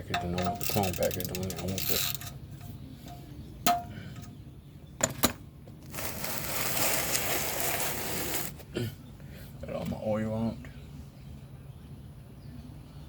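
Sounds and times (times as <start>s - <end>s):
metal tools clinking: 0.0s - 3.2s
steady hiss or rustle: 5.9s - 8.6s.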